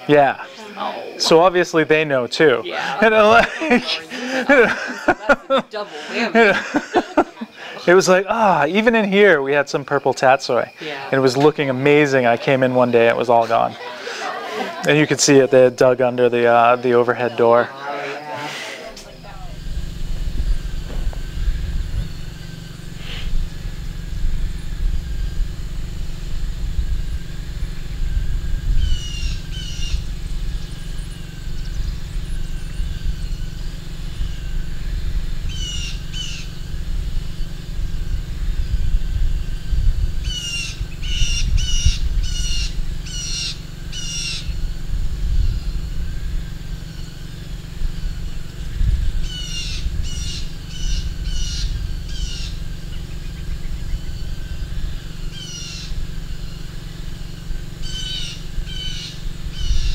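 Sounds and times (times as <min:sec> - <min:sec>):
bird calling: 0:00.0 - 0:59.9
low rumble: 0:18.5 - 0:59.9.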